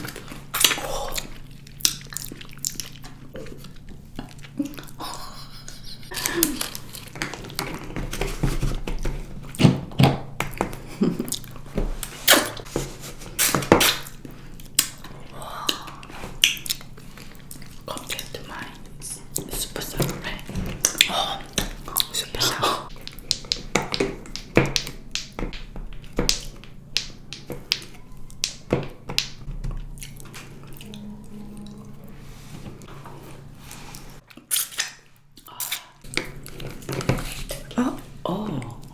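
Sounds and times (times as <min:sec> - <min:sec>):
lip smacks while eating: 0:00.0 - 0:07.7.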